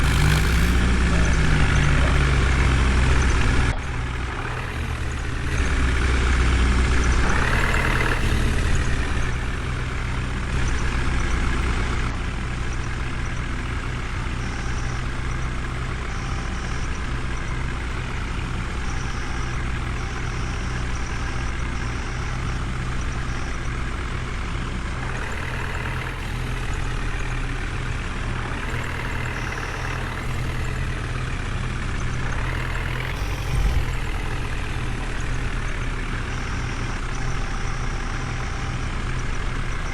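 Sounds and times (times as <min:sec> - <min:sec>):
heavy diesel engine revving: 0:00.0 - 0:39.9.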